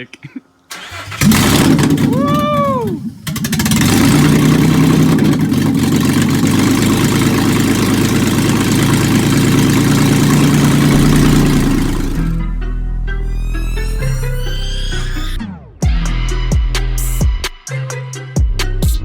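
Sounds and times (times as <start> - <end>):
truck engine running loudly: 1.2 - 15.4.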